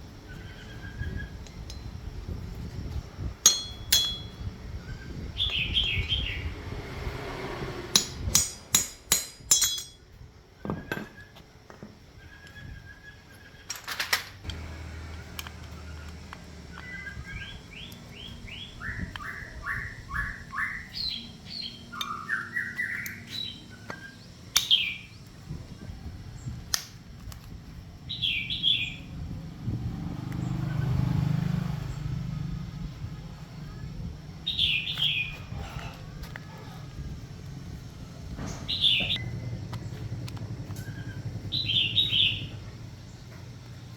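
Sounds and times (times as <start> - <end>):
small bird chirping: 0.0 - 6.6, 14.5 - 26.7, 27.9 - 35.9, 36.9 - 43.9.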